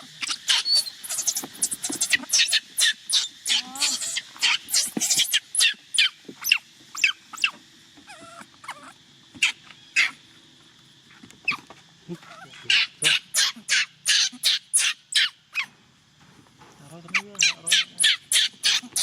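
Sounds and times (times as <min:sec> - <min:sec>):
baby monkey crying shrilly: 0:00.0 - 0:07.6, 0:08.6 - 0:10.2, 0:12.3 - 0:15.7, 0:17.1 - 0:19.0.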